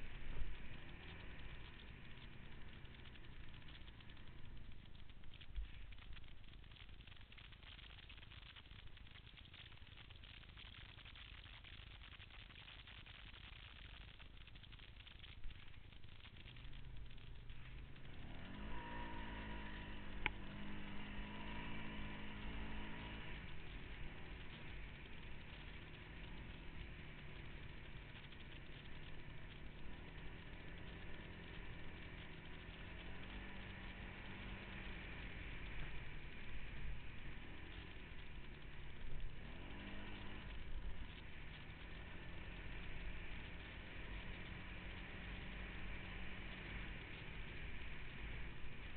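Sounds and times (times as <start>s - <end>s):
off-road vehicle engine revving: 0.0s - 5.4s, 14.8s - 48.9s.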